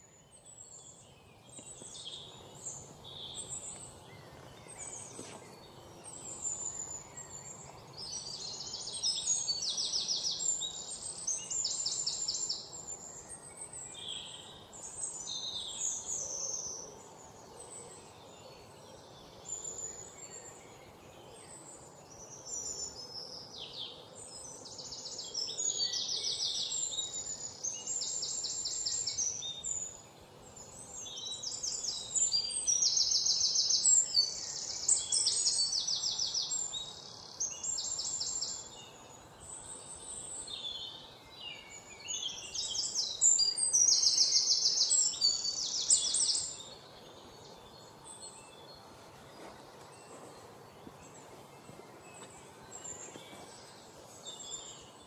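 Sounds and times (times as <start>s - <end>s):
faint steady background hiss: 0.0s - 55.0s
songbirds trilling and chirping: 0.0s - 55.0s.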